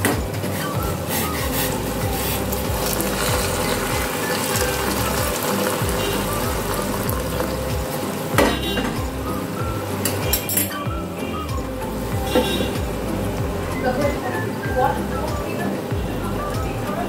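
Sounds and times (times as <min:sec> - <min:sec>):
pan bubbling: 0:00.0 - 0:10.5
spice paste sizzling in oil: 0:00.6 - 0:08.3
water poured into hot pan: 0:02.2 - 0:08.3.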